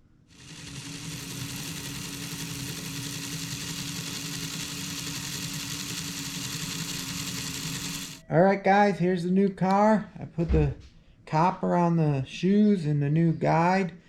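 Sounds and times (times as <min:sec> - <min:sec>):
small electric motor whining: 0:00.3 - 0:08.2.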